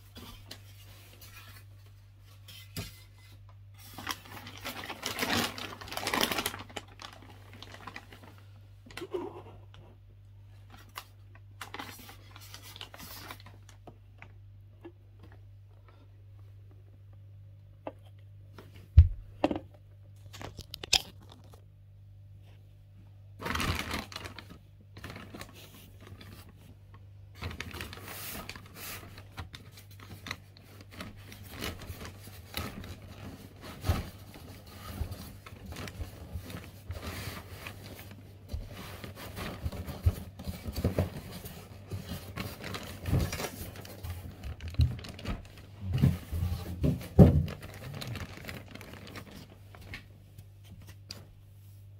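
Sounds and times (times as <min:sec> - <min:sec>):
wrapping rustling and tearing: 0:03.8 - 0:09.1, 0:10.6 - 0:13.8, 0:20.2 - 0:21.6, 0:23.4 - 0:50.1.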